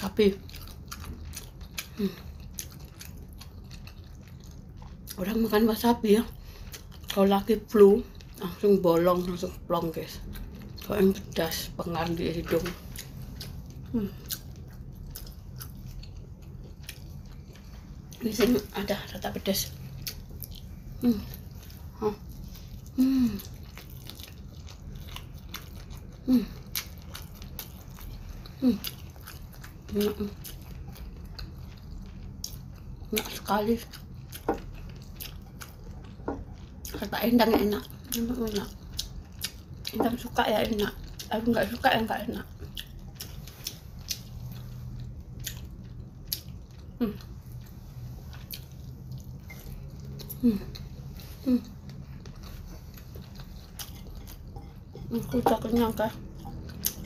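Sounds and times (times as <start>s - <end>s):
steady low hum: 0.0s - 57.0s
person chewing and biting: 0.4s - 5.2s, 19.8s - 33.2s, 38.7s - 40.0s, 42.6s - 55.2s, 56.2s - 57.0s
short falling hum-like voice: 50.3s - 51.9s.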